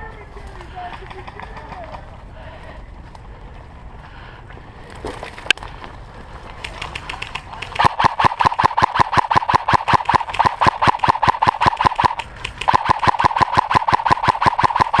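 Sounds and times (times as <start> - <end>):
airsoft gun full-auto burst: 6.8 - 15.0.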